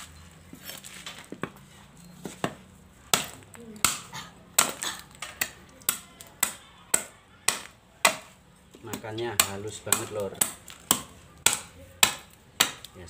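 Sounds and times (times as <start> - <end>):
machete chopping coconut: 2.2 - 13.0.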